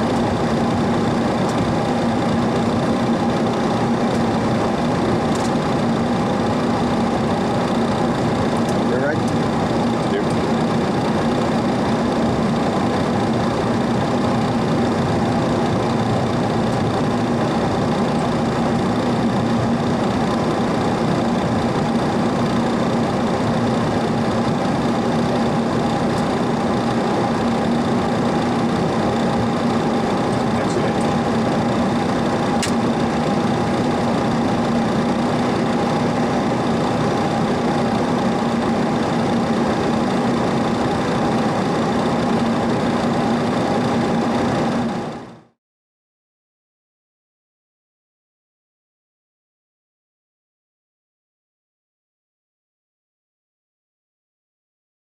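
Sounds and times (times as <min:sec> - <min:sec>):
machine hum and whine: 0:00.0 - 0:45.6
sharp click: 0:32.6 - 0:32.8.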